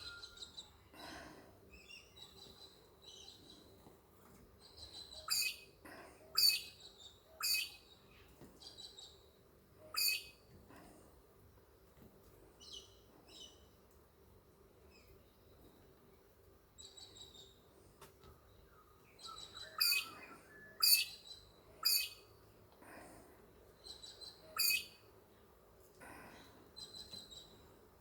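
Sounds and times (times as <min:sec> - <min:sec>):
pet bird chirping and calling: 0:04.9 - 0:05.7, 0:06.4 - 0:06.8, 0:07.4 - 0:07.8, 0:09.9 - 0:10.3, 0:19.2 - 0:22.2, 0:24.0 - 0:25.0.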